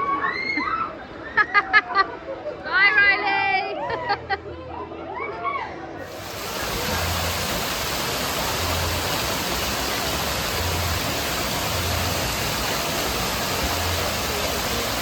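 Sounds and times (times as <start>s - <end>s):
water rushing: 6.0s - 15.0s.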